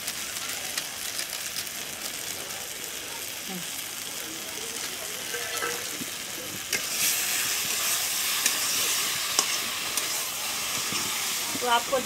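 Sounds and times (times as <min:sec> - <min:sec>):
food sizzling in a pan: 0:00.0 - 0:12.0
metal spatula stirring: 0:05.2 - 0:05.9, 0:06.7 - 0:12.0.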